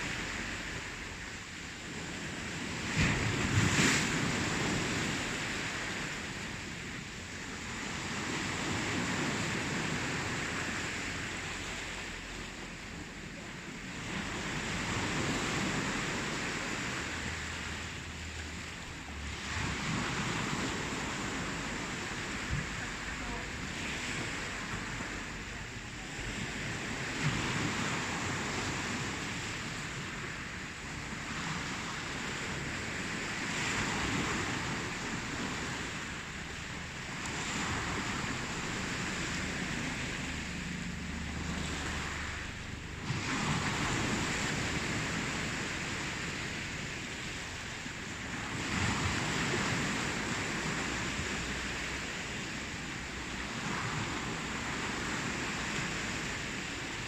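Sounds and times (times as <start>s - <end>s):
waves breaking on shore: 0.0s - 57.0s.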